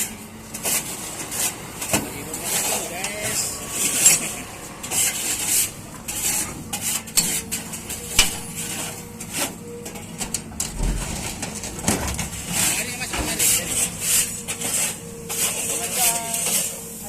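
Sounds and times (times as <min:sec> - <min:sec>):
excavator bucket scraping shells: 0:00.0 - 0:16.9
sharp clattering knocks: 0:06.8 - 0:08.6.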